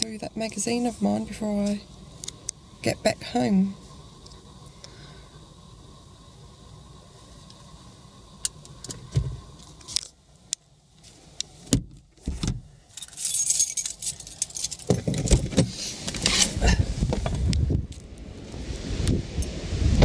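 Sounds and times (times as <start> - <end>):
clicks and rattles inside car: 11.6 - 17.6
wind buffeting microphone: 16.5 - 20.0.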